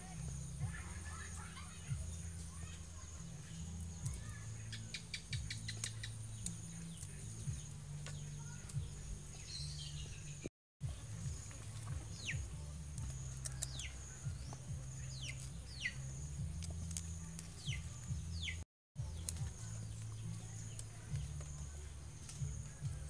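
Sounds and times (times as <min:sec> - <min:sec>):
scissors snipping: 0:13.0 - 0:14.6.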